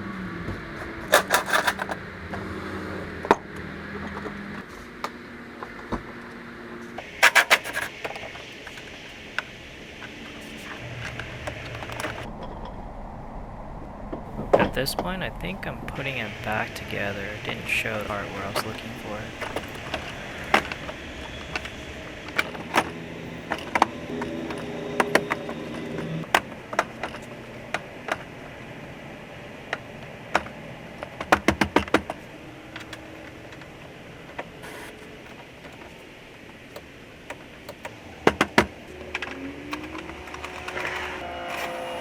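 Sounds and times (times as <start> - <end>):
tools and plastic trim rattling: 0.9 - 2.0, 7.0 - 8.9, 18.2 - 28.4, 29.7 - 41.8.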